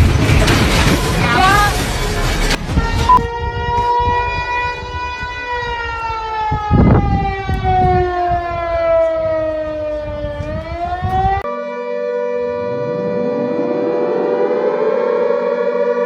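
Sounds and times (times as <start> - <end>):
wind noise on microphone: 0.0 - 11.4
warning siren wailing: 1.2 - 16.0
siren holding steady tone: 2.8 - 16.0.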